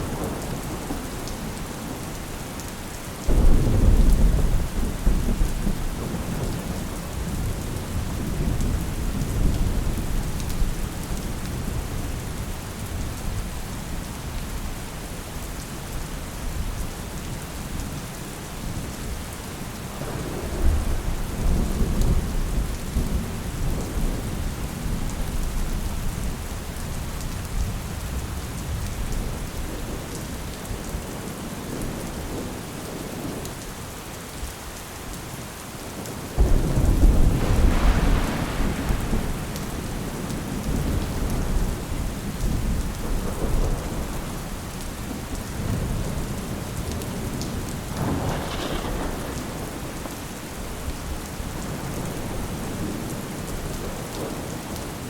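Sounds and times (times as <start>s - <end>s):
steady rain falling: 0.0s - 55.0s
rolling thunder: 3.3s - 13.4s, 20.0s - 26.3s, 36.4s - 54.6s.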